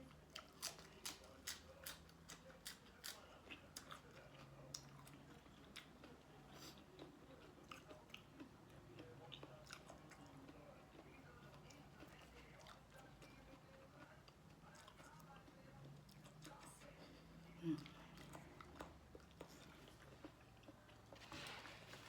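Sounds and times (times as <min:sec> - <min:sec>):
person chewing crunchy food: 0:00.1 - 0:16.6.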